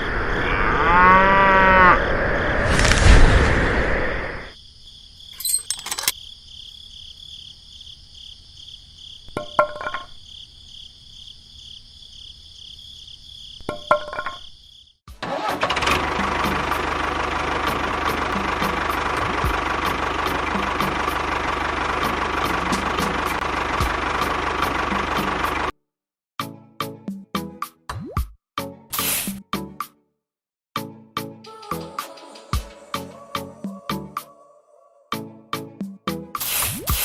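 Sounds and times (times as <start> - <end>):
motor running: 15.2 - 25.7.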